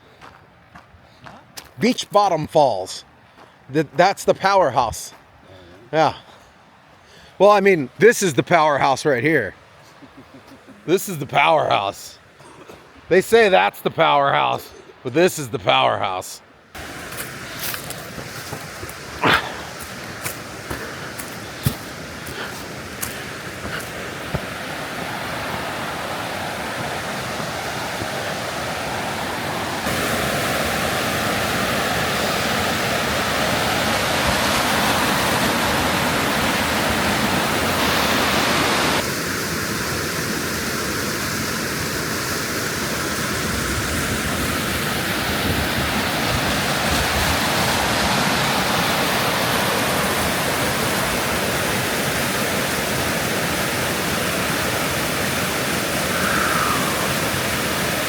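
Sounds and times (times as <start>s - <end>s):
waterfall rushing: 16.8s - 58.0s.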